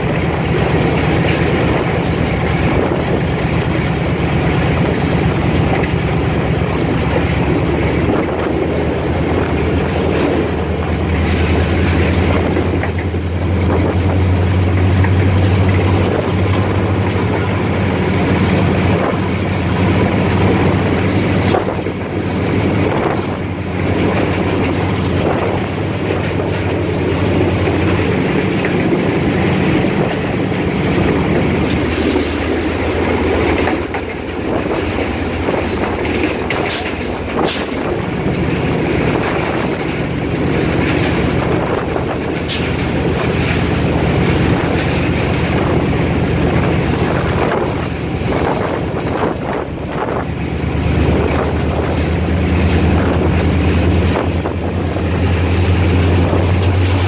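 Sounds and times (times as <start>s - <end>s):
diesel locomotive engine hum: 0.0s - 57.0s
wheels clicking over rail joints: 0.0s - 57.0s.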